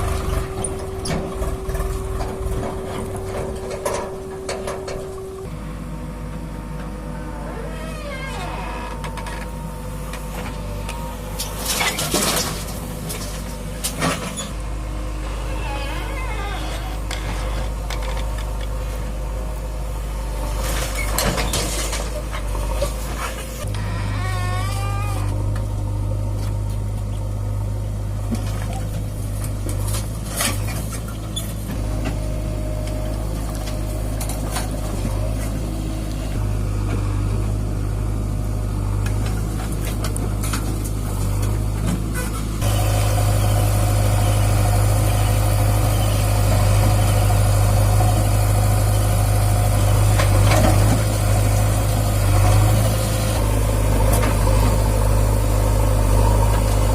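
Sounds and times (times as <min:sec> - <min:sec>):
rattles and knocks: 0:00.0 - 0:05.5
heavy diesel machinery running: 0:00.0 - 0:56.9
squealing tones sliding down: 0:07.2 - 0:09.1, 0:15.4 - 0:17.2, 0:23.7 - 0:25.4.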